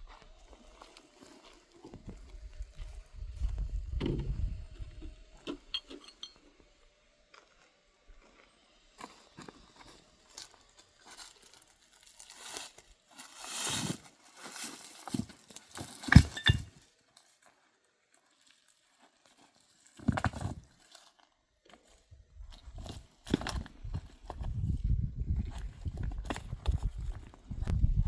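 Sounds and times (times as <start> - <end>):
rustling and handling noises: 9.1 - 24.6.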